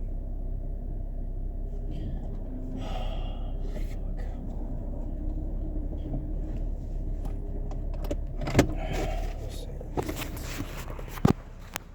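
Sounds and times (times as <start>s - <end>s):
car cabin rumble: 0.0s - 11.9s
short rustle: 8.8s - 11.8s.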